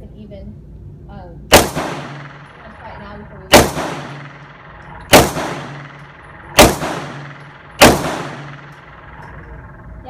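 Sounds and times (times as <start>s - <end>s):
handgun shots echoing: 1.5s - 2.9s, 3.5s - 9.6s.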